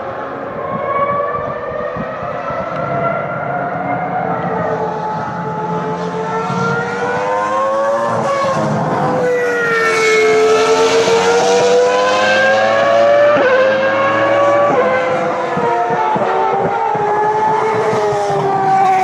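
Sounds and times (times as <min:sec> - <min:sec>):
racing car engine at high revs: 0:00.0 - 0:19.0.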